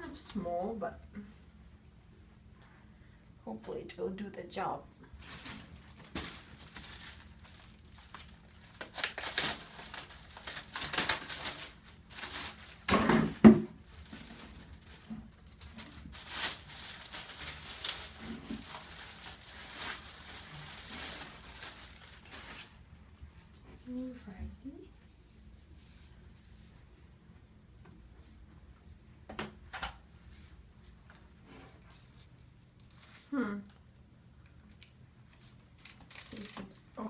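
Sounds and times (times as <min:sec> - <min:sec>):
packaging crinkling and rustling: 0:05.2 - 0:22.9.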